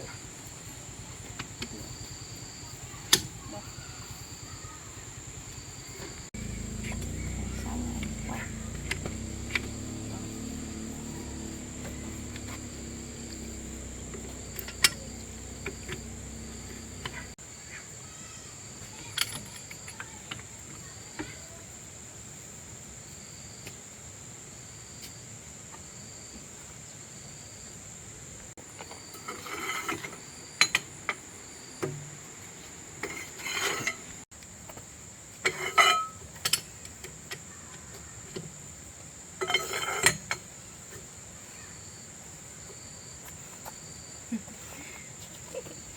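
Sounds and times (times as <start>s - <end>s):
crickets trilling: 0.0s - 45.9s
low hum: 6.2s - 17.4s
metallic clinks of tools: 13.8s - 17.2s.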